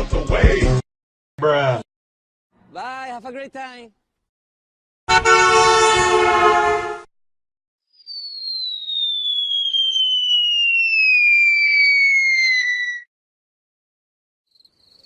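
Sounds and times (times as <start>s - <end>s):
horn-like blare: 5.1s - 7.1s
descending falling-bomb whistle: 7.9s - 13.1s.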